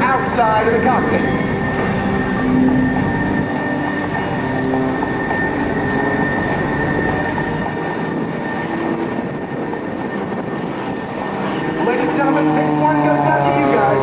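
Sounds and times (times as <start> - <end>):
high whine: 0.0 - 14.0
plane engine and propeller: 0.0 - 14.0.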